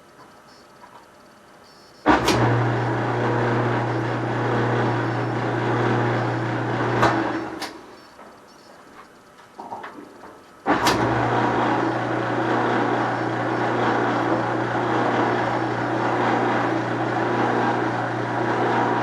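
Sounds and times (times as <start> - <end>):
dryer motor hum: 0.0 - 19.0
sharp click of dryer: 2.1 - 2.6, 10.7 - 11.1.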